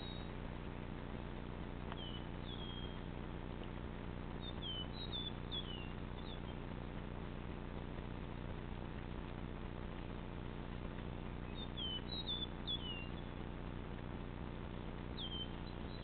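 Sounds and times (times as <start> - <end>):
bird chirping: 0.0 - 0.4, 1.8 - 3.3, 4.3 - 6.8, 11.4 - 13.5, 15.1 - 16.0
steady low hum: 0.0 - 16.0.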